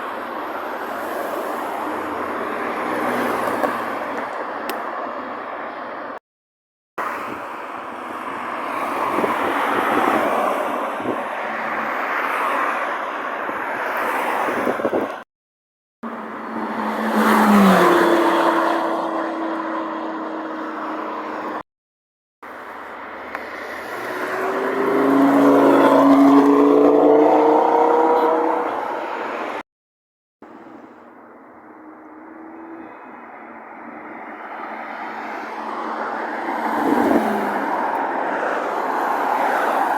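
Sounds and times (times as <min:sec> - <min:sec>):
car engine passing: 0:16.1 - 0:21.5, 0:23.5 - 0:29.6, 0:31.8 - 0:39.9
car engine accelerating: 0:23.8 - 0:29.0.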